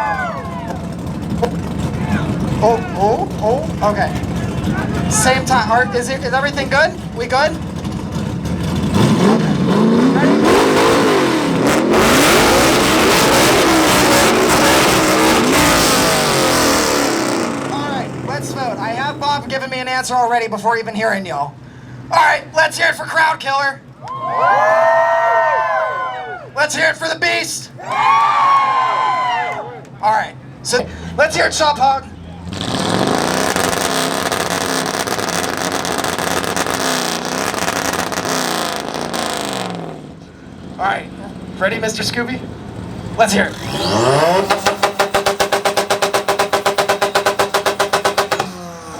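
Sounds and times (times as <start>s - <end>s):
car engines revving: 0.0s - 20.1s, 29.9s - 48.9s.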